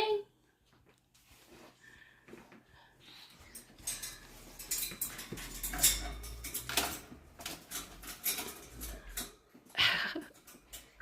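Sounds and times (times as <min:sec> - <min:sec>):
dish clinking and knocking: 0:03.8 - 0:09.4.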